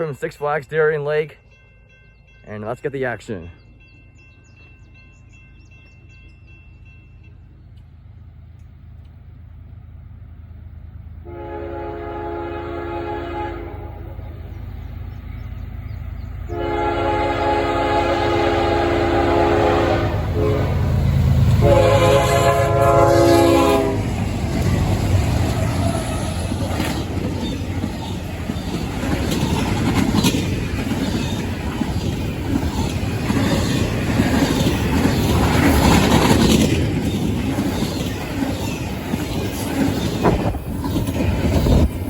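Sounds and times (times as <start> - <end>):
train rumbling past: 0.0 - 42.0
train horn blasts: 11.2 - 14.2, 16.5 - 24.2
wheels clacking over rail joints: 20.2 - 42.0.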